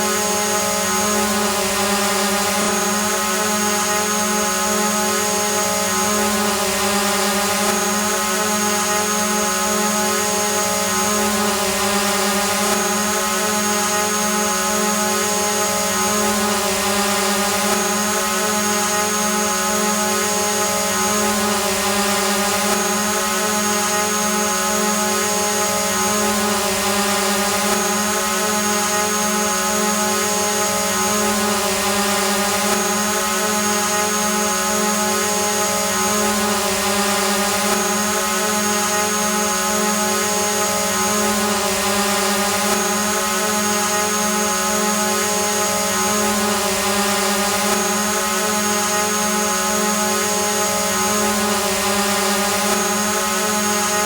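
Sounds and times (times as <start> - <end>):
drone propeller whine: 0.0 - 54.0.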